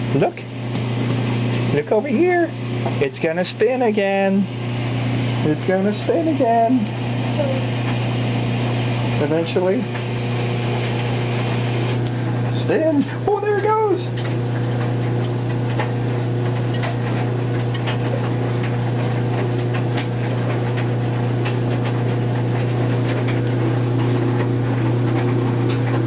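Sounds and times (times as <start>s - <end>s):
washing machine spinning: 0.0s - 26.0s
ticks and rattles: 11.9s - 26.0s.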